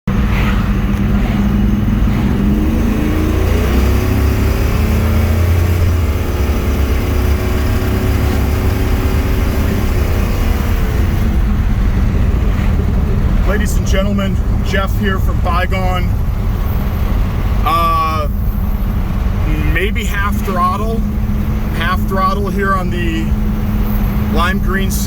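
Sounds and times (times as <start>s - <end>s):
car engine deep rumble: 0.0s - 25.0s.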